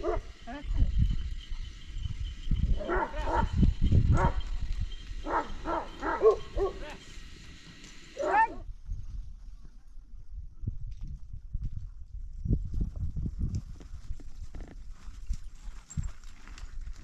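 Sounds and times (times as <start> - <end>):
dog barking: 0.0 - 0.3, 2.8 - 4.4, 5.2 - 6.9, 8.2 - 8.6.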